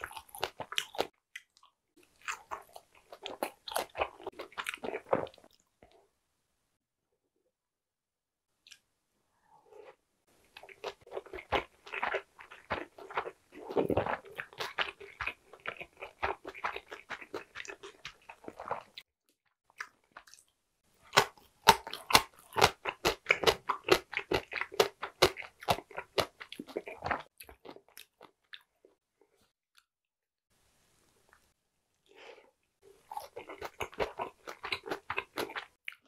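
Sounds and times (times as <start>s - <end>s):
wet chewing and mouth smacks: 10.5s - 19.1s, 19.7s - 28.7s, 33.1s - 36.0s.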